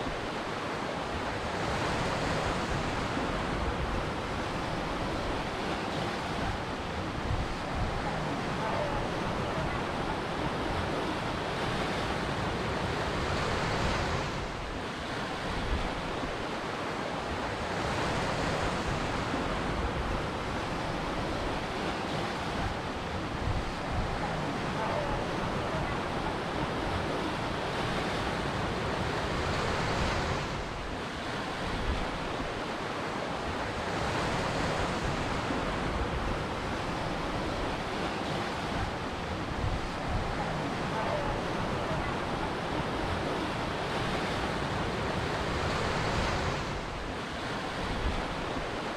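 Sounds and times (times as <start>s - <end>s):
ocean surf breaking on shore: 0.0s - 48.9s.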